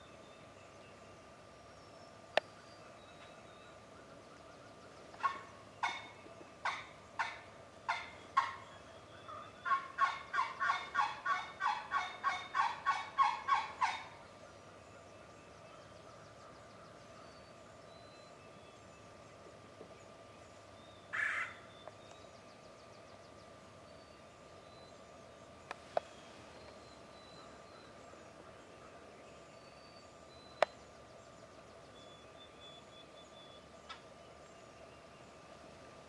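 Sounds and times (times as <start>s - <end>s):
small birds chirping: 0.0s - 36.0s
harsh turkey call: 5.2s - 8.6s, 9.3s - 14.1s, 21.1s - 21.6s
turkey yelping: 5.2s - 8.7s, 9.3s - 14.2s, 21.1s - 21.6s.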